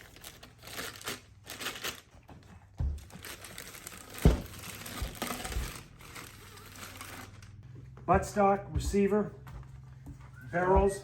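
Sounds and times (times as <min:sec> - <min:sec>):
packaging rustling and crinkling: 0:00.0 - 0:07.6.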